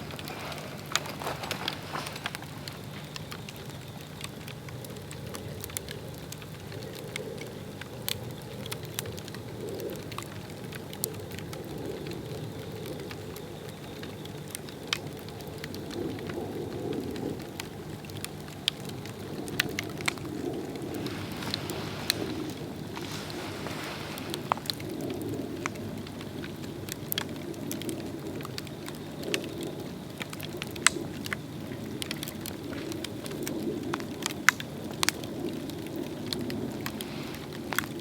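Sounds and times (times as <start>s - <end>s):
log fire crackling and popping: 0.0s - 38.0s
low rush of flame: 17.1s - 26.9s.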